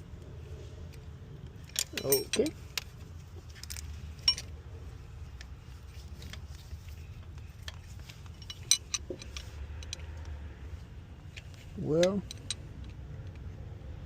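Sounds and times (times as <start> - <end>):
low steady hum: 0.0 - 14.0
metallic clicks of hand tools: 1.7 - 2.9, 7.6 - 10.3, 11.4 - 13.5.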